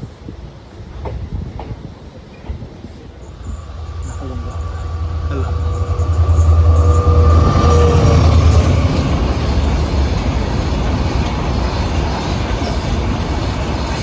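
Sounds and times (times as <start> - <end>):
train rumbling on track: 0.0 - 14.0
steady high tone: 3.2 - 11.1.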